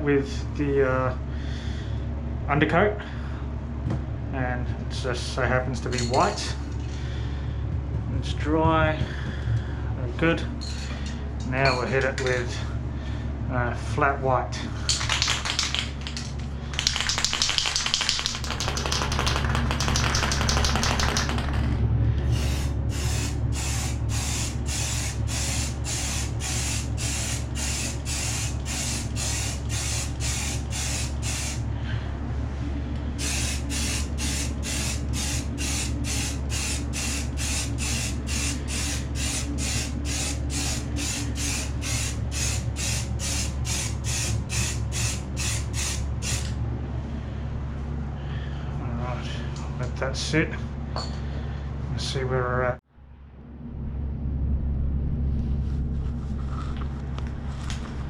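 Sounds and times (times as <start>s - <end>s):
steady low hum: 0.0s - 58.0s
spray can hissing: 14.9s - 21.6s, 22.3s - 31.6s, 33.2s - 46.5s.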